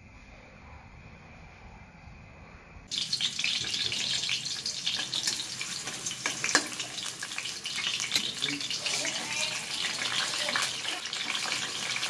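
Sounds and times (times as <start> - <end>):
garlic frying in a wok: 2.9 - 12.0.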